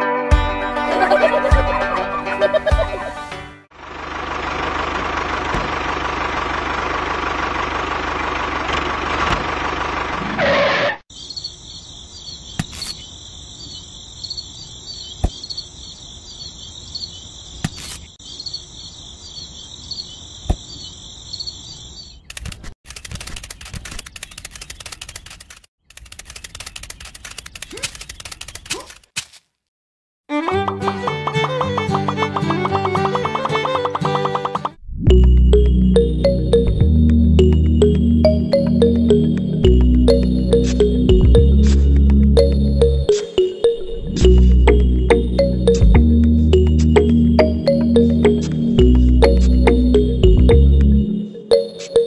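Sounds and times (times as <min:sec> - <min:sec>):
steady engine: 0:03.7 - 0:10.5, 0:35.1 - 0:43.1, 0:44.2 - 0:51.2
crickets chirping: 0:11.1 - 0:22.2.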